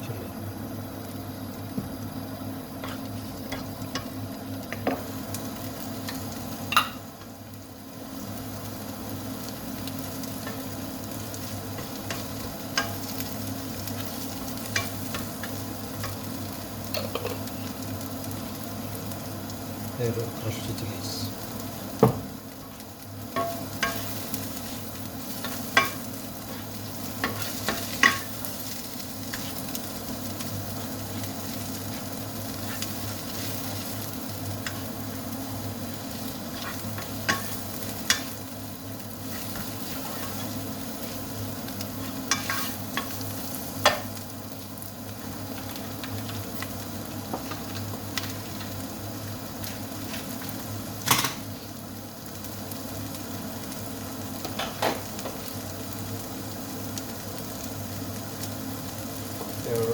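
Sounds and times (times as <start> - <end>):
meat sizzling in a pan: 0.3 - 59.9
spoon knocking on pan: 22.0 - 22.3, 23.4 - 24.0.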